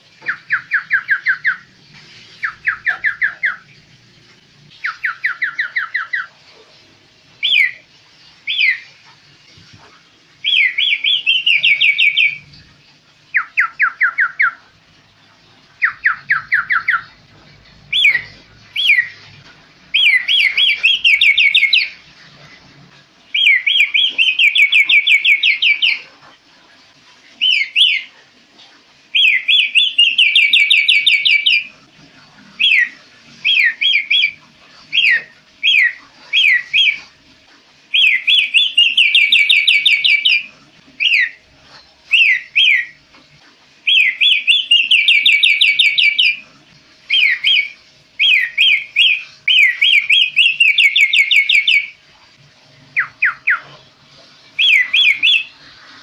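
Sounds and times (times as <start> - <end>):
bird singing trills and whistles: 0.2 - 1.7, 2.4 - 3.8, 4.8 - 6.3, 7.4 - 7.8, 8.5 - 8.9, 10.4 - 12.5, 13.3 - 14.6, 15.8 - 17.2, 17.9 - 19.2, 19.9 - 22.0, 23.3 - 26.1, 27.4 - 28.1, 29.1 - 31.7, 32.6 - 37.1, 37.9 - 43.0, 43.8 - 46.4, 47.1 - 52.0, 52.9 - 53.7, 54.6 - 55.6.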